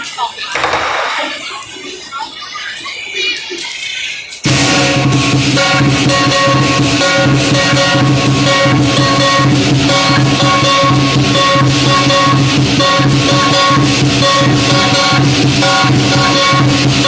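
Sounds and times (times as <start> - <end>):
cymbals crashing: 4.4 - 17.0
big drum beating: 4.5 - 17.0
gong ringing: 4.5 - 17.0.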